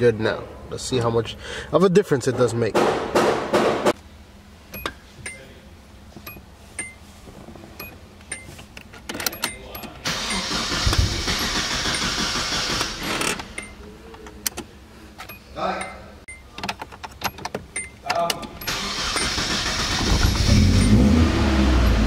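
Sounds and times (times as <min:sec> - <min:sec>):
engine cranking on starter: 0:10.0 - 0:13.6, 0:18.6 - 0:22.0.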